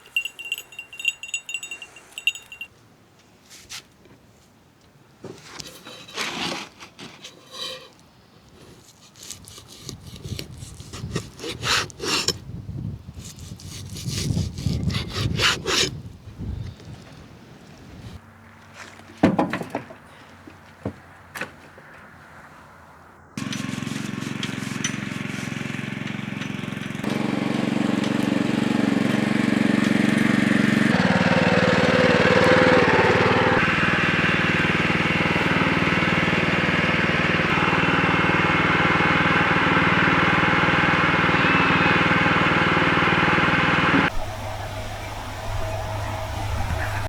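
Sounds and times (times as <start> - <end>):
small engine running: 23.4 - 47.0.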